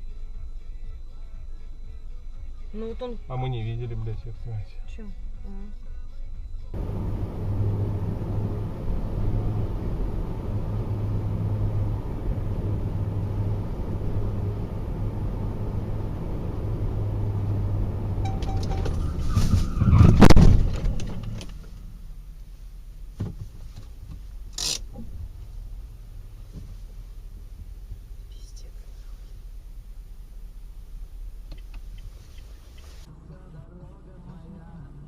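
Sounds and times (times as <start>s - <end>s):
car engine and tyres droning: 6.6s - 35.0s
loud crash: 18.3s - 22.0s.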